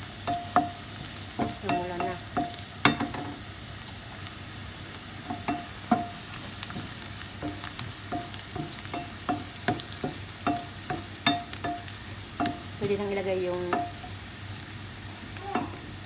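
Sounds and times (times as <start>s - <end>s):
vegetables sizzling in a frying pan: 0.0s - 16.0s
utensil knocking against pan: 5.3s - 12.8s.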